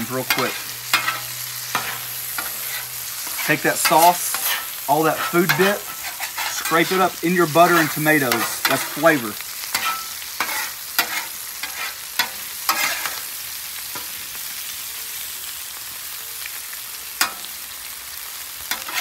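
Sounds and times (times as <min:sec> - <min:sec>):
tomatoes sizzling in butter: 0:00.0 - 0:19.0
metal spatulas scraping steel: 0:00.2 - 0:07.0, 0:07.6 - 0:09.0, 0:09.7 - 0:13.2, 0:18.7 - 0:19.0.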